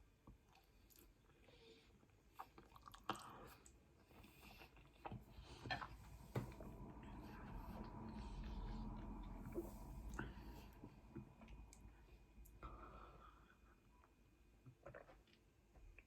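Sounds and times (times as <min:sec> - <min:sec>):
chewing: 0:00.5 - 0:06.0, 0:14.0 - 0:16.0.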